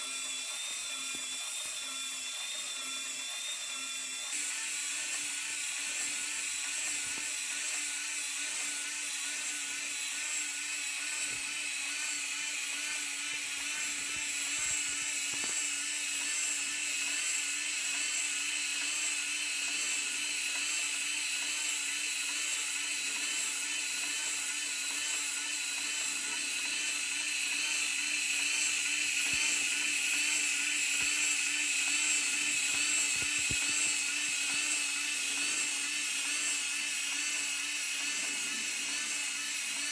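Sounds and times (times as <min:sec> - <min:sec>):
small electric motor whining: 0:00.0 - 0:39.9.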